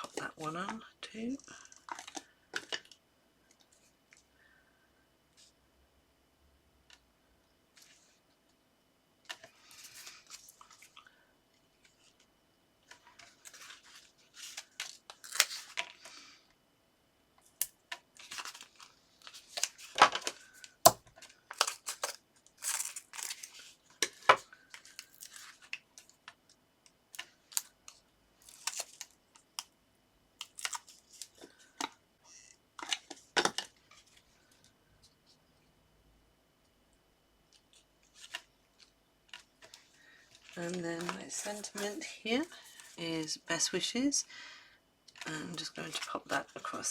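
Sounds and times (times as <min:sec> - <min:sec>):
paper rustling and crinkling: 0:11.8 - 0:16.2, 0:18.1 - 0:26.2, 0:37.6 - 0:43.0.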